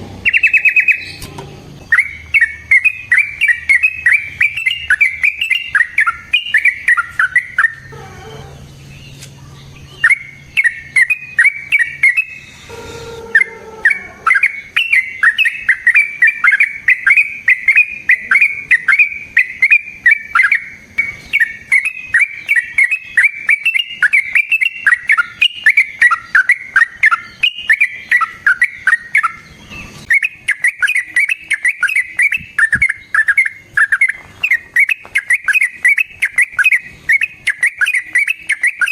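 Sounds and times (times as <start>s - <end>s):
bird singing chattering notes: 0.0s - 38.9s.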